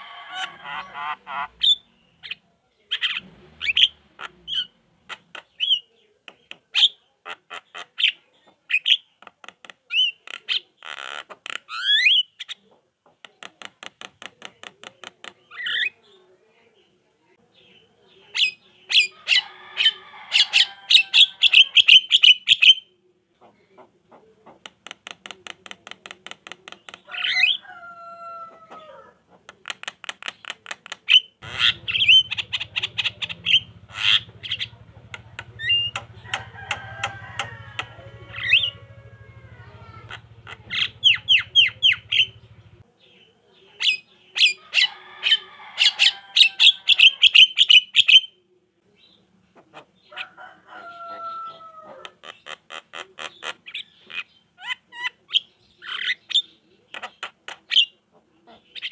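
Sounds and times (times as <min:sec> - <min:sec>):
myna chattering: 0:00.0 - 0:08.2, 0:29.0 - 0:42.8
faint low hum: 0:31.4 - 0:43.8.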